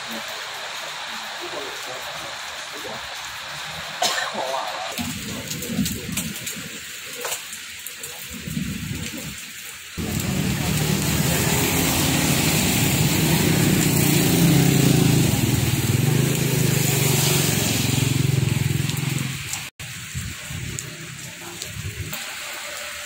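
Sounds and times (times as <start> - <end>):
heavy rain: 0.0 - 23.0
loud low rumble: 10.0 - 19.5.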